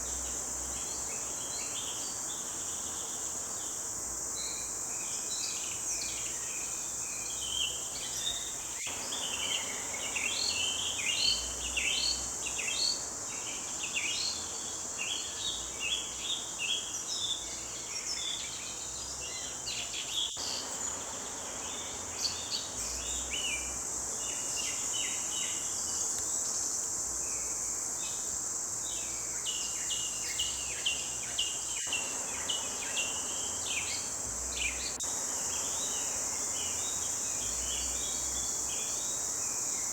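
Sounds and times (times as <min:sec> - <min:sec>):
high insect drone: 0:00.0 - 0:39.9
songbirds chirping and trilling: 0:00.0 - 0:39.9.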